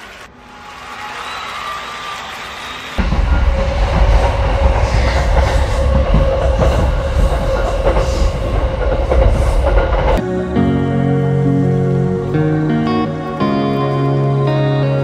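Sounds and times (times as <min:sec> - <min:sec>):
freight train rumbling: 0:03.0 - 0:10.3
sustained whine: 0:03.0 - 0:14.4
guitar music: 0:10.2 - 0:15.0.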